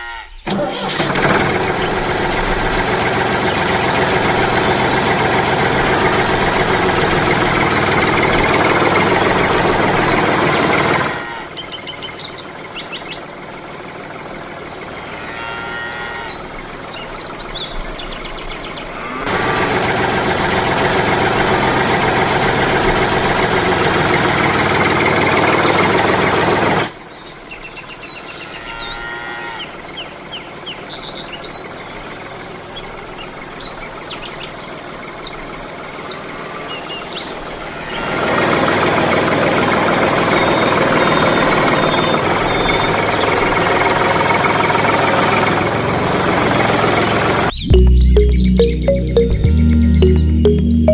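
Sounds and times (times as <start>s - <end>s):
birds chirping: 1.4s - 5.3s, 11.4s - 15.2s, 16.2s - 19.2s, 22.4s - 24.9s, 47.5s - 50.9s.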